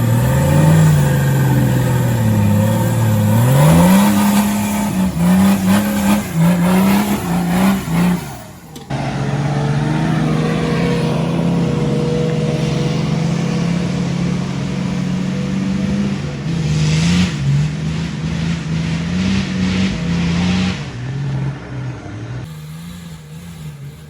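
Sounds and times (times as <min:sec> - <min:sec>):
off-road vehicle engine revving: 0:00.0 - 0:24.0.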